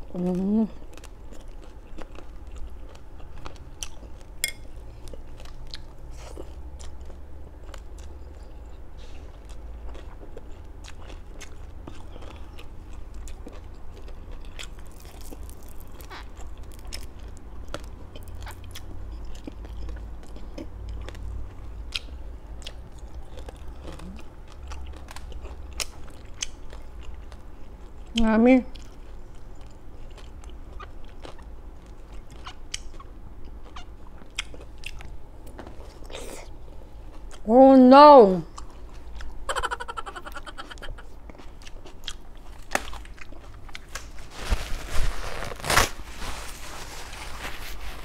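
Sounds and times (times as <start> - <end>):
person chewing crispy food: 0.0 - 37.5, 38.5 - 48.0
small crunches and clicks: 14.4 - 18.6.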